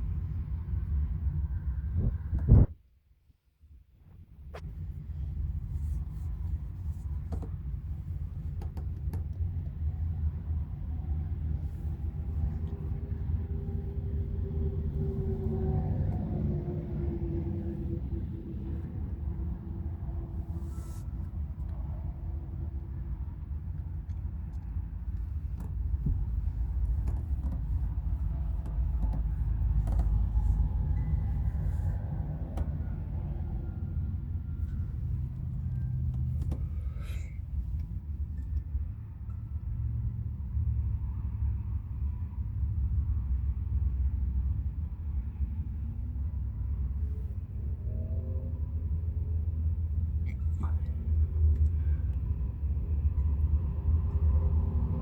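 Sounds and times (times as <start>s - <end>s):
highway traffic rumble: 0.0s - 2.8s, 4.0s - 55.0s
vehicle engine drone: 4.2s - 55.0s
vehicle passing: 10.6s - 23.6s.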